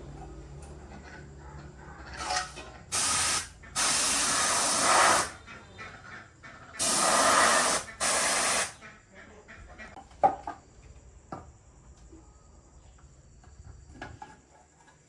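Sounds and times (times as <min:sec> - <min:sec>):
hissing spray bursts: 0:02.2 - 0:05.4, 0:06.8 - 0:08.8.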